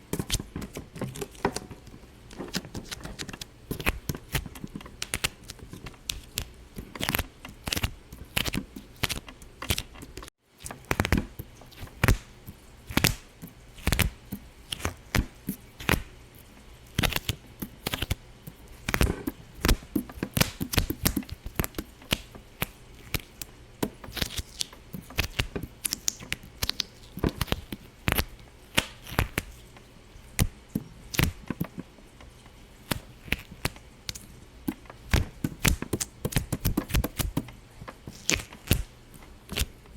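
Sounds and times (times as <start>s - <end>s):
sharp pops and clicks: 18.8s - 29.5s, 32.9s - 38.9s.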